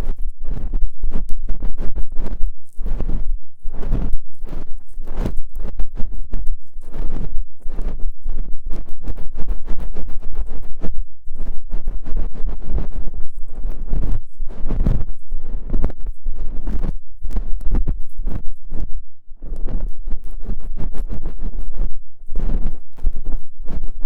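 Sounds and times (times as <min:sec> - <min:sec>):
tool scratching against microphone: 0:00.0 - 0:24.0.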